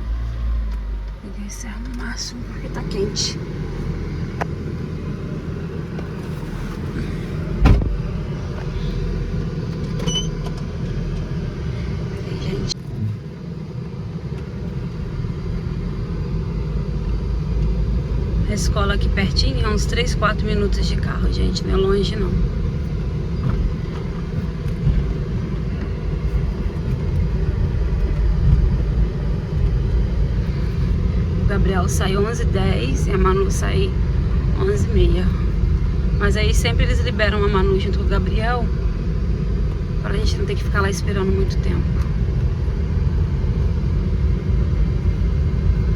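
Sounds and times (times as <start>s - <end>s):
air conditioning fan blowing: 0.0s - 45.9s
car engine and road rumble: 0.0s - 45.9s
thump: 7.6s - 8.0s.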